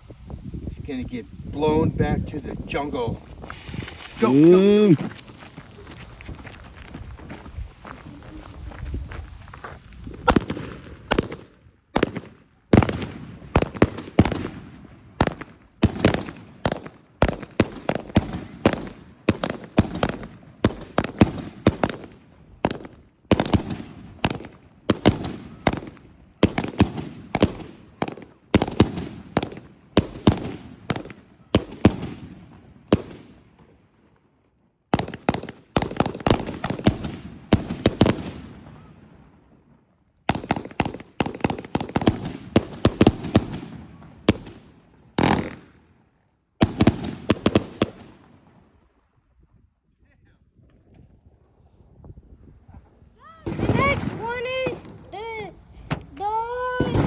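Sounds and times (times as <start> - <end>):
fireworks bangs: 2.3 - 33.4, 34.9 - 39.4, 40.3 - 45.7, 53.4 - 57.0.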